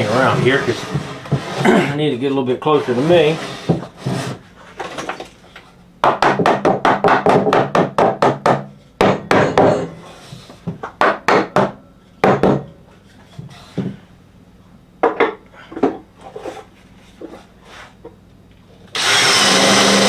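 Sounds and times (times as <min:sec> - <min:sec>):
sharp knocks on wood: 0:06.0 - 0:09.9, 0:10.7 - 0:12.7.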